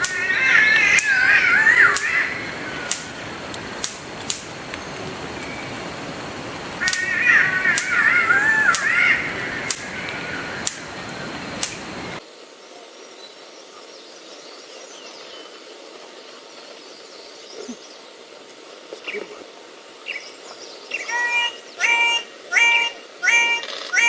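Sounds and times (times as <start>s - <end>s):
birds calling: 0.0s - 12.2s, 12.9s - 24.0s
steady hiss: 0.0s - 24.0s
short clicks: 2.9s - 4.8s, 11.6s - 11.9s.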